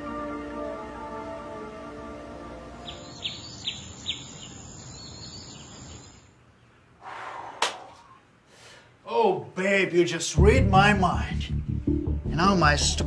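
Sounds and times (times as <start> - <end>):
bird chirping: 2.8 - 6.9.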